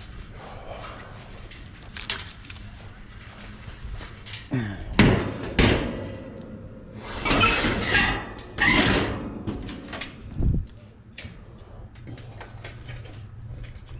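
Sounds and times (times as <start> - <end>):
metal parts and tools clattering: 1.5 - 2.9.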